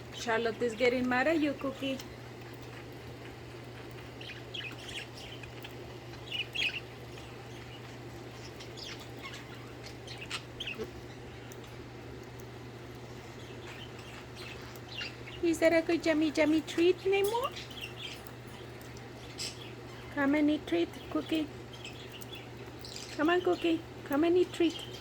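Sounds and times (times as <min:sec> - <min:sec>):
steady low hum: 0:00.0 - 0:25.0
budgerigars chirping: 0:03.8 - 0:11.6, 0:13.3 - 0:25.0.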